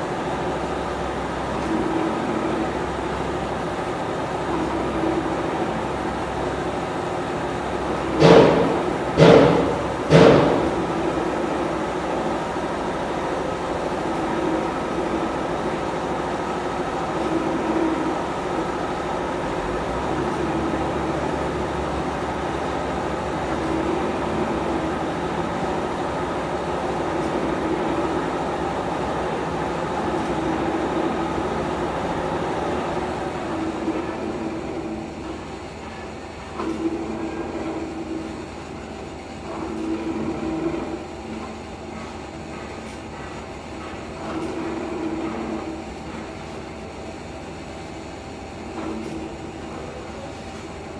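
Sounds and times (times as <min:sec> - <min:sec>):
workshop machine humming: 0:00.0 - 0:50.9
sharp knock: 0:08.2 - 0:10.7.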